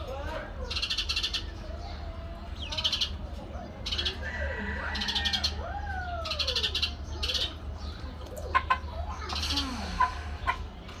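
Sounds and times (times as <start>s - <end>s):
chickens calling: 0.1s - 11.0s.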